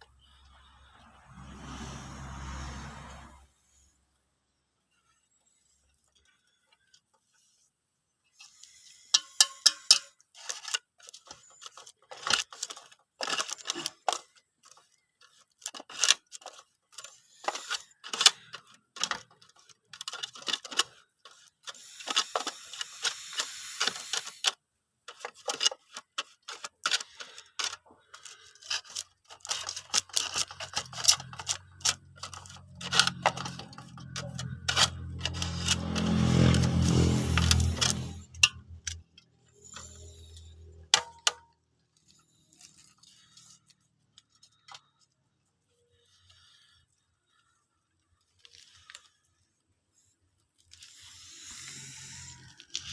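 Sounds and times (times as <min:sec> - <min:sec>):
hard parts clicking and rattling: 0:08.4 - 0:45.2
scraping: 0:25.1 - 0:45.1.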